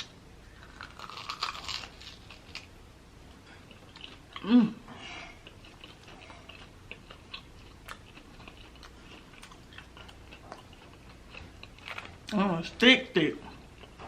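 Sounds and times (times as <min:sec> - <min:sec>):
crunchy chewing: 0:00.0 - 0:12.4, 0:13.4 - 0:14.0
person humming: 0:04.4 - 0:04.9.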